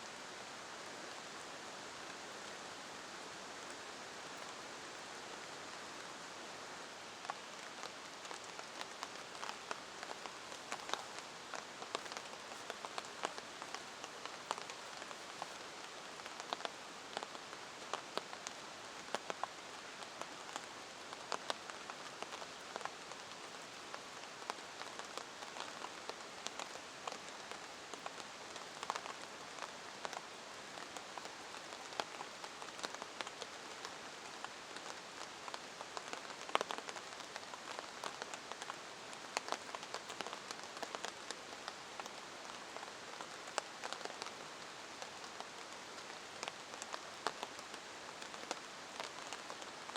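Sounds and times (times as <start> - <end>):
steady rain: 0.0 - 49.9.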